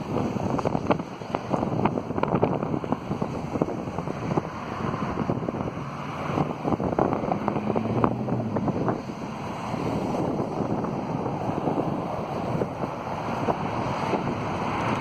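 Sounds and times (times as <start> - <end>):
fire rushing: 0.0 - 15.0
wind buffeting microphone: 0.0 - 15.0.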